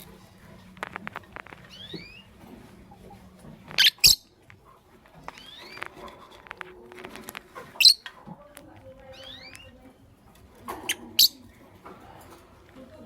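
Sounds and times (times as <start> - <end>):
lovebirds chirping: 0.0 - 4.4, 5.2 - 8.2, 8.8 - 11.6.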